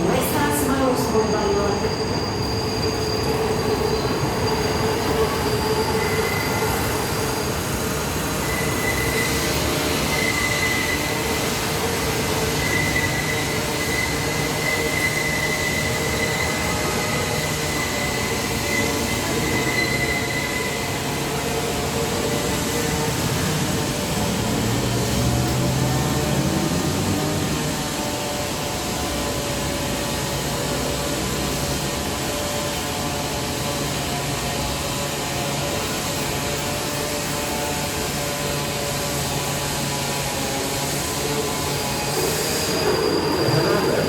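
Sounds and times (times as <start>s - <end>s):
train rumble: 0.0s - 44.0s
train wheels squealing on rails: 0.0s - 44.0s.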